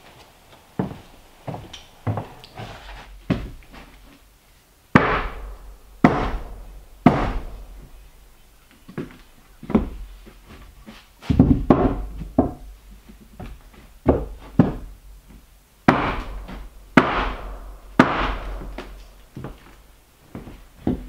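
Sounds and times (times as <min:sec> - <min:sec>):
heavy knocks on wood: 0:05.0 - 0:08.0, 0:11.3 - 0:12.7, 0:13.4 - 0:15.0, 0:15.9 - 0:19.7.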